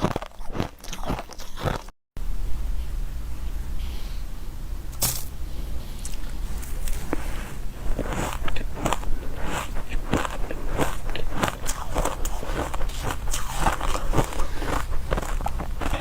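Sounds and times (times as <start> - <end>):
ice being chewed: 0.0 - 1.9, 6.0 - 16.0.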